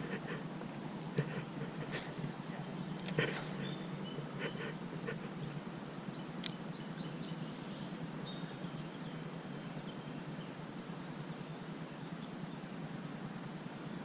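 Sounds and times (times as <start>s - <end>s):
high insect-like whine: 0.0s - 14.0s
faint bird chirps: 1.2s - 10.6s.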